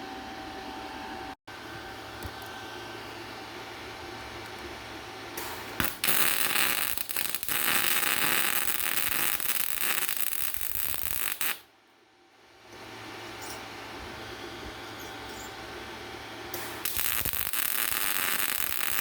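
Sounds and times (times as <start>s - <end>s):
welding arc hissing and crackling: 5.4s - 11.6s, 16.5s - 19.0s.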